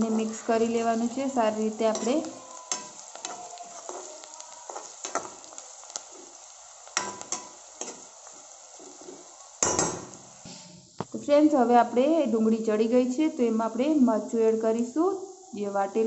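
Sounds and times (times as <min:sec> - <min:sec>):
metal spoon scraping a pan: 0:00.0 - 0:11.0
onions sizzling in hot oil: 0:00.0 - 0:16.0
spoon clattering: 0:01.8 - 0:04.1.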